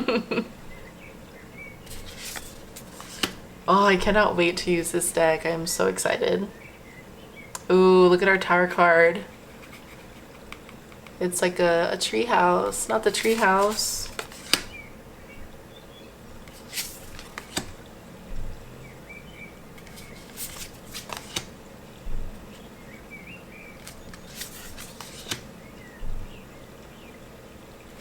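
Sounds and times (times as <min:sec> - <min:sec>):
cards sliding and flicking: 0:01.9 - 0:03.4, 0:12.8 - 0:14.8, 0:16.5 - 0:17.8, 0:19.8 - 0:21.5, 0:23.8 - 0:25.5.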